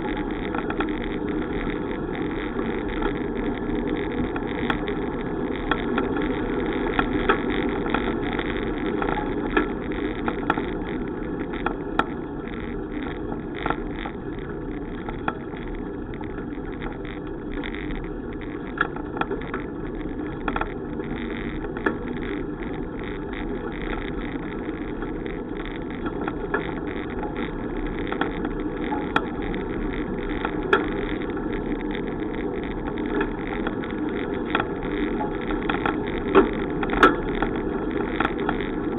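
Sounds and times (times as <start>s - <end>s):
bicycle clicks and rattles: 0.0s - 38.9s
wind and rolling bicycle tyres: 0.0s - 38.9s.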